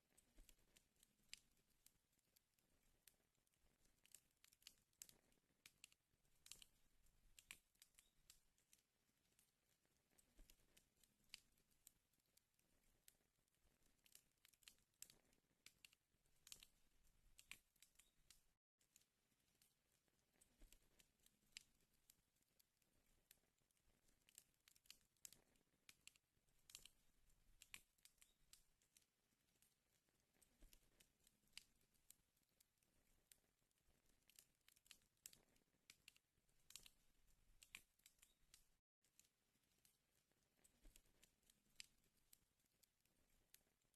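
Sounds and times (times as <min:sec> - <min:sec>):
wood fire crackling: 0:00.0 - 0:43.6
fire pops and snaps: 0:03.0 - 0:12.0, 0:12.6 - 0:19.7, 0:20.3 - 0:32.6, 0:33.2 - 0:40.0.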